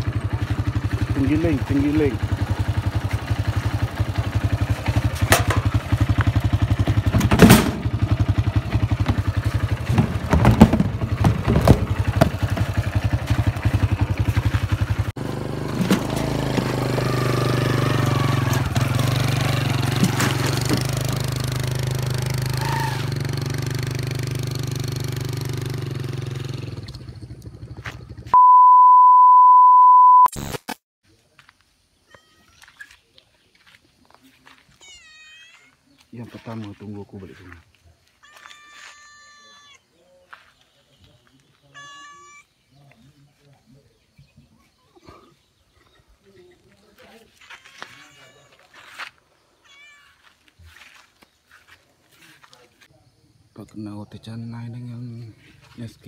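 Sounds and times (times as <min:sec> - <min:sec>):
motorcycle engine putter: 0:04.5 - 0:14.8
loud high beep: 0:28.4 - 0:30.4.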